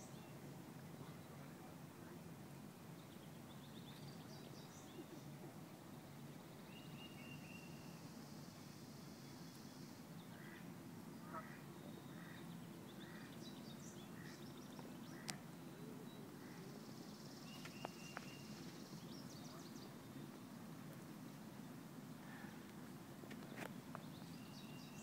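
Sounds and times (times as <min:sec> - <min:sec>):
soft bird calls: 0:06.7 - 0:20.5.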